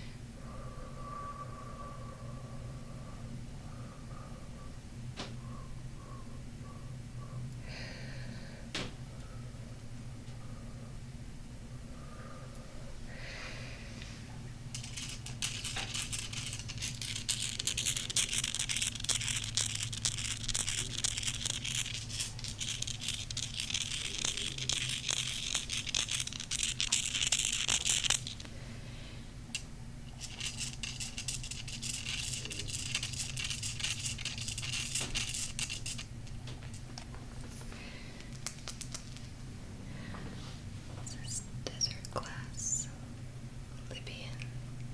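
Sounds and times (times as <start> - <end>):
fingernails scratching crystal: 14.7 - 28.4, 30.1 - 36.1.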